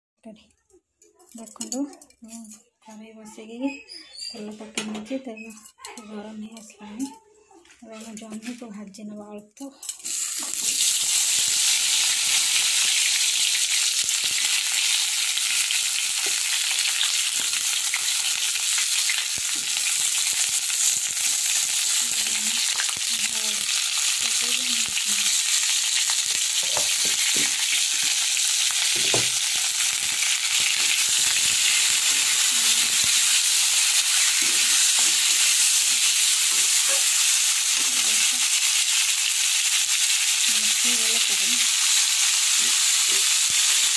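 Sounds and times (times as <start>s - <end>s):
vegetables sizzling in hot oil: 9.9s - 43.9s.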